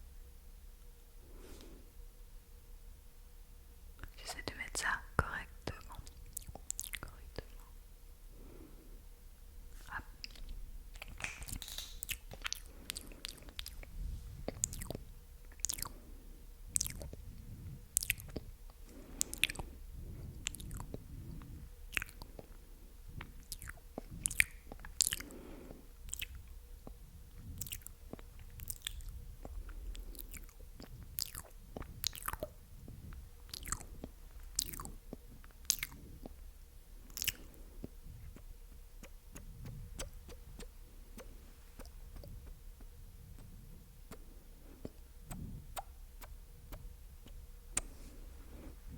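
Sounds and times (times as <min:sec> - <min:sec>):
wet mouth clicks and smacks: 0:06.0 - 0:07.6, 0:10.2 - 0:13.9, 0:14.5 - 0:16.0, 0:16.7 - 0:17.2, 0:17.9 - 0:19.7, 0:20.4 - 0:22.6, 0:23.2 - 0:25.3, 0:26.0 - 0:36.4, 0:37.1 - 0:48.0.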